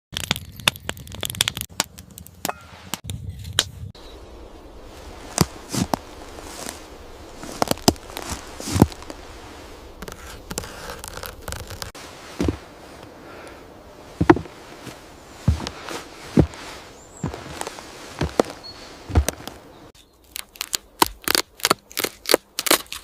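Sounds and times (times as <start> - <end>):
sharp clicks and crackles: 0.1 - 3.7
scraping wood: 5.3 - 13.5, 14.1 - 19.6.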